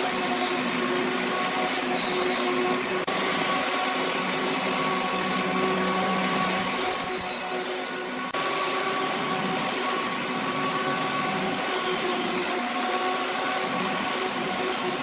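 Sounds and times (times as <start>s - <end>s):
power tool motor whining: 0.0s - 15.0s.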